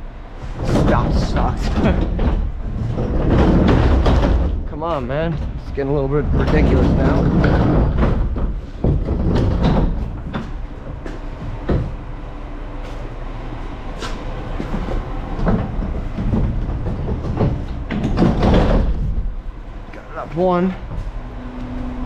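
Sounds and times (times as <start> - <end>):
metal dumpster clanking over pavement: 0.4 - 22.0
diesel truck engine running: 10.0 - 22.0.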